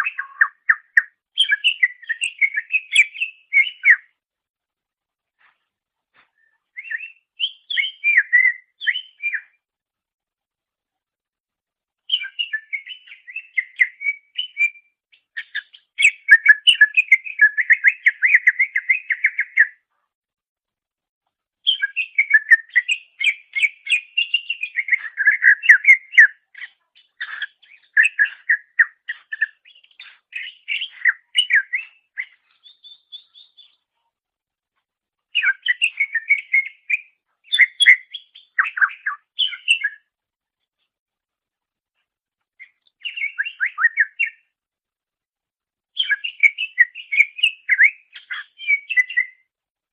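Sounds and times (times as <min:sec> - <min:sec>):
bird singing chirps and whistles: 0:00.0 - 0:04.1, 0:06.4 - 0:09.6, 0:12.1 - 0:19.8, 0:21.6 - 0:33.8, 0:35.3 - 0:40.1, 0:42.6 - 0:44.5, 0:46.0 - 0:49.5.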